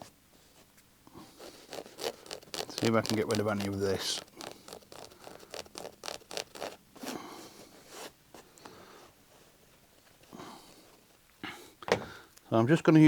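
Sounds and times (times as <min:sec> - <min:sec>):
stitching threads ripping: 0:01.3 - 0:07.2.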